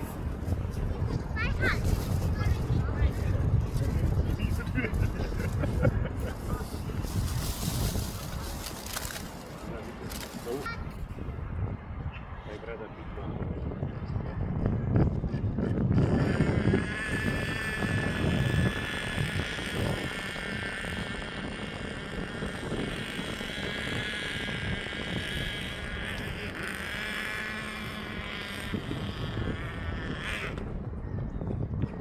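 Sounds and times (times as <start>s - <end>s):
jet engine rumble: 0.0s - 31.8s.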